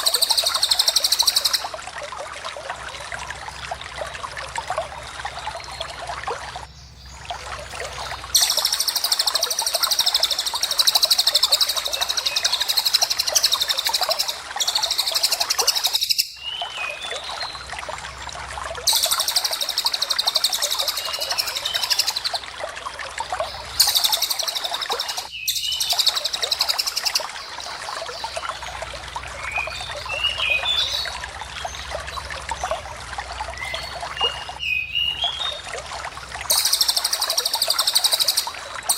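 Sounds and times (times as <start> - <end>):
bird trilling: 8.4 - 16.4
bird chirps: 8.4 - 17.3.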